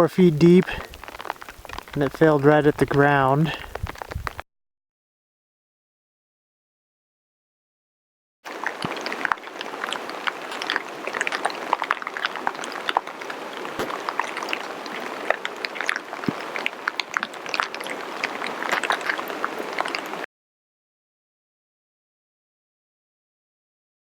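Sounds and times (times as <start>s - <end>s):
water drips: 0.1s - 4.4s, 8.5s - 20.3s
water falling and splashing: 0.1s - 4.4s, 8.5s - 20.3s.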